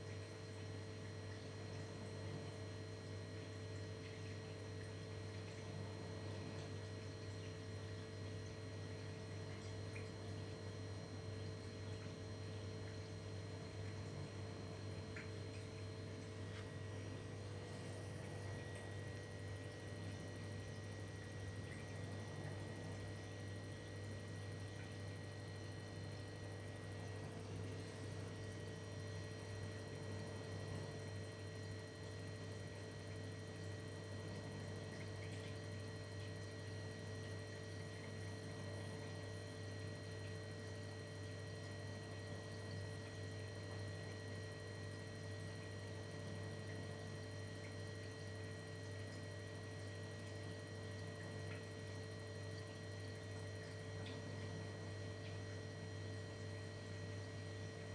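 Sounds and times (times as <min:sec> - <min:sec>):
steady electrical hum: 0:00.0 - 0:57.9.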